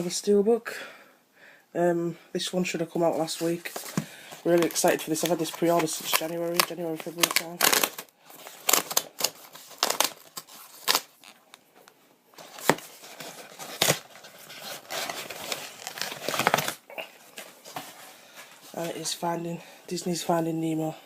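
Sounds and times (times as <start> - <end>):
packaging rustle: 3.2 - 19.0
packaging crinkling and tearing: 3.3 - 11.6, 12.4 - 17.6.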